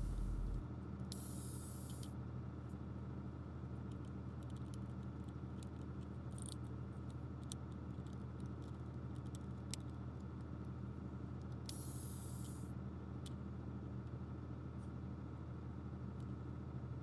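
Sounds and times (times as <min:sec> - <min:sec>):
steady low hum: 0:00.0 - 0:02.1.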